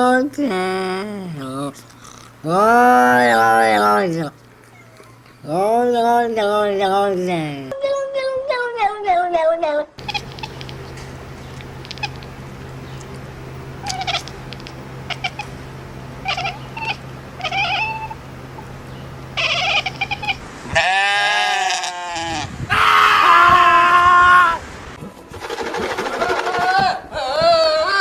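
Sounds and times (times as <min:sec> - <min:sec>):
cat meowing: 0:04.6 - 0:05.4, 0:07.9 - 0:11.0, 0:11.8 - 0:12.3, 0:13.8 - 0:15.5, 0:16.2 - 0:18.2, 0:19.4 - 0:22.5
cat yowling: 0:04.6 - 0:05.4, 0:07.8 - 0:11.0, 0:11.8 - 0:12.3, 0:13.8 - 0:15.5, 0:16.2 - 0:18.2, 0:19.4 - 0:24.6
low hum: 0:10.0 - 0:20.8.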